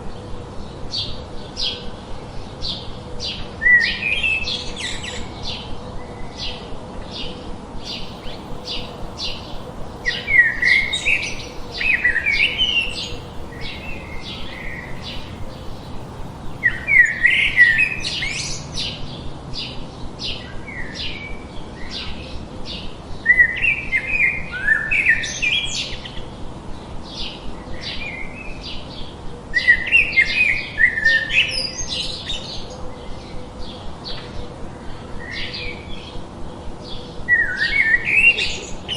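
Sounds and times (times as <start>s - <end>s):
warbling birdsong: 7.9s - 18.6s.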